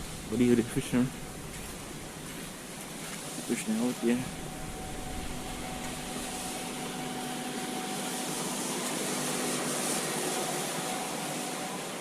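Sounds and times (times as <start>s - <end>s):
river and waterfalls rushing: 0.0s - 12.0s.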